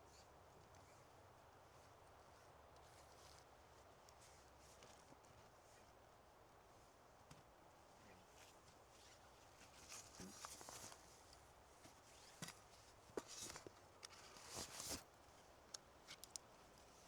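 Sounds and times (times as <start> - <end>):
small sharp clicks: 15.7 - 16.5.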